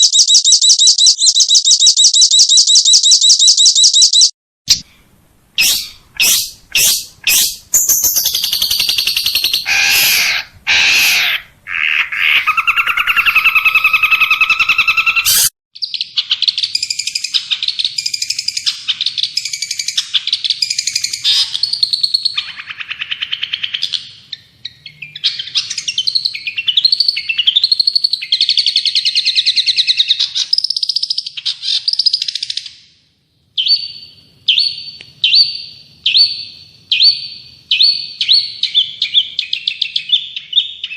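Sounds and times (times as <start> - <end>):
high-pitched bird trilling song: 0.0 - 4.8, 5.6 - 32.9, 33.6 - 40.9
short bird chips: 5.6 - 11.4
harsh bird calls: 5.6 - 32.4.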